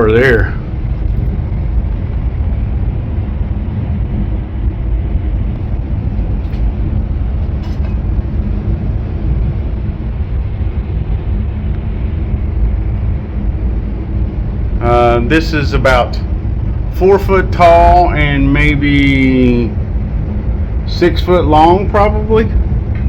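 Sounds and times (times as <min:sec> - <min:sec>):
machinery rumbling and humming: 0:00.0 - 0:23.0.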